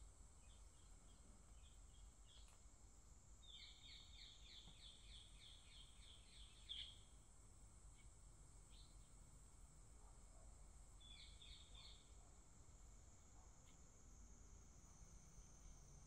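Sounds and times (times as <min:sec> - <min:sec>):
small bird chirping: 0:00.4 - 0:02.6, 0:03.4 - 0:07.1, 0:07.9 - 0:09.2, 0:11.0 - 0:12.2.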